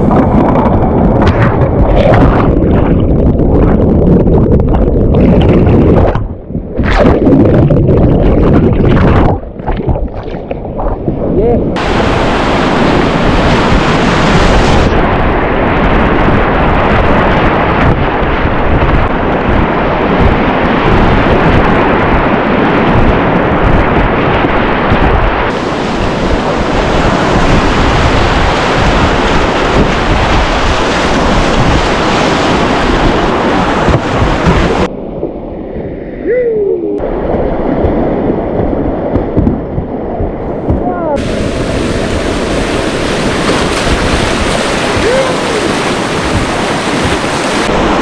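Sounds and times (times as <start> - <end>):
wind buffeting microphone: 0.0 - 34.9, 35.7 - 48.0
whitewater rapids rushing: 11.8 - 14.9, 40.7 - 48.0.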